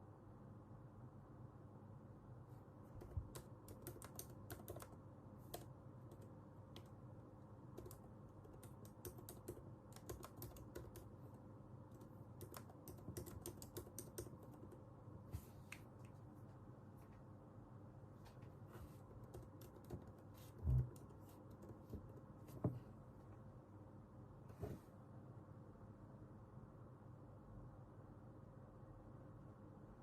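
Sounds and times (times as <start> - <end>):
faint steady hum: 0.0 - 30.0
keyboard typing: 2.9 - 7.0, 7.7 - 14.9, 19.1 - 22.4.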